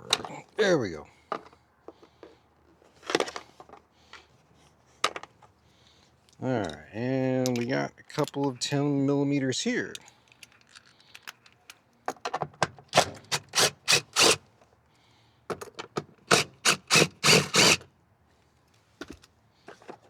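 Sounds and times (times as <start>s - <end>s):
ratchet wrench clicking: 13.2s - 14.4s, 16.3s - 17.8s.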